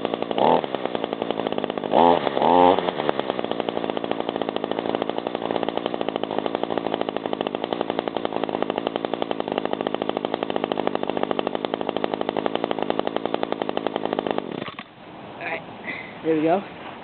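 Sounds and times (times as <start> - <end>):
leaf blower engine idling: 0.0 - 17.0.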